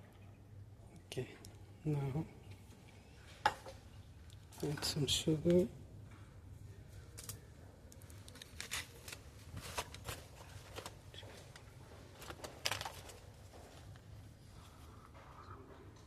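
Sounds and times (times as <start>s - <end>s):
paper sachets tearing and crinkling: 8.0s - 11.0s, 12.2s - 13.4s.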